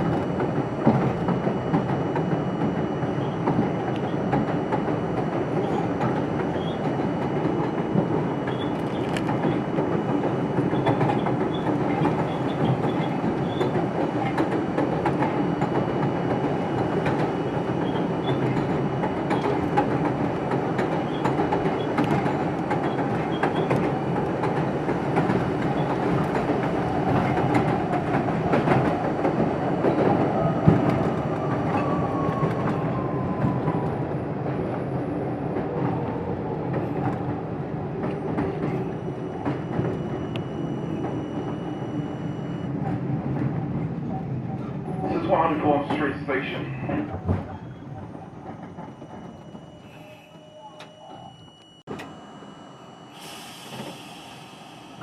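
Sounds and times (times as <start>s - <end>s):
rail joint clicks and knocks: 0.0s - 32.8s, 42.8s - 49.7s
train wheels rumbling on track: 0.0s - 50.9s, 53.2s - 55.0s.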